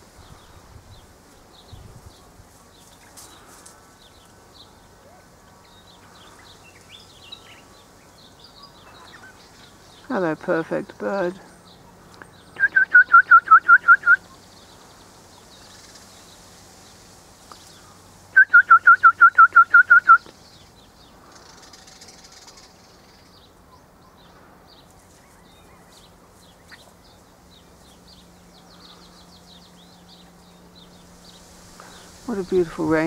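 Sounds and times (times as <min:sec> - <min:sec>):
faint high chirps of small birds: 0:00.0 - 0:33.0
bird whistling repeated notes: 0:12.6 - 0:14.2, 0:18.4 - 0:20.3.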